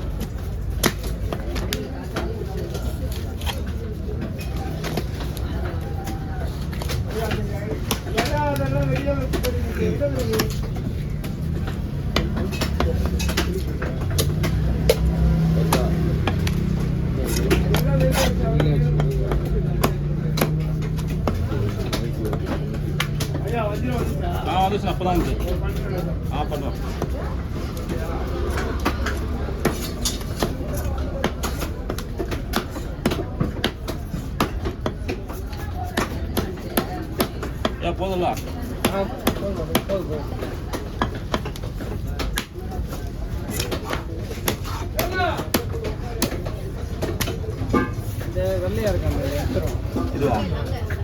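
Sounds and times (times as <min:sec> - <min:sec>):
cleaver chopping fish: 0:00.1 - 0:24.3, 0:25.2 - 0:48.4.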